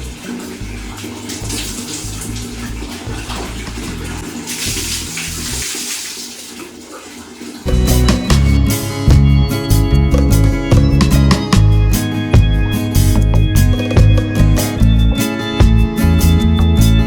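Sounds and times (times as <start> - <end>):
water running and splashing: 0.0 - 9.2.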